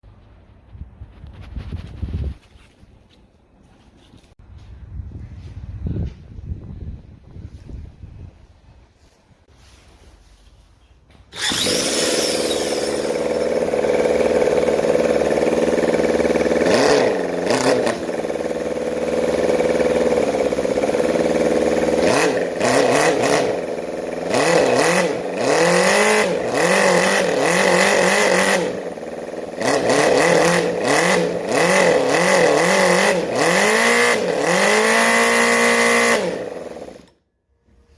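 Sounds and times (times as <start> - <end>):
car engine revving: 11.4 - 37.1.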